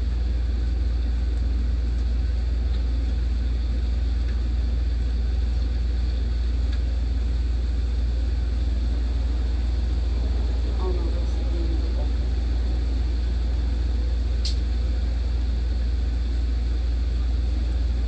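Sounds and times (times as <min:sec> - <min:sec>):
low thunder rumble: 0:08.2 - 0:16.3.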